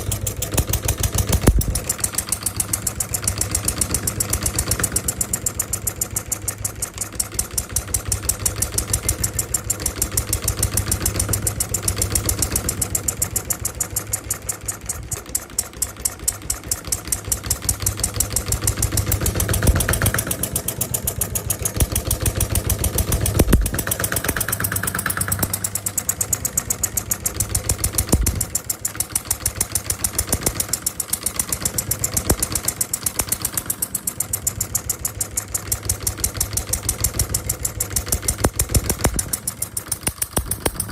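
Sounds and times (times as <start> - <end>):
sharp engine knocks: 0.0 - 5.7, 15.0 - 40.9
small diesel engine running: 0.0 - 40.9.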